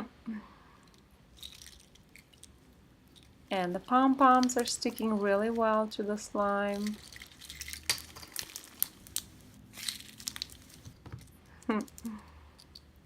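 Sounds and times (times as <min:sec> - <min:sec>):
slime crackling when squeezed: 0:06.7 - 0:10.9.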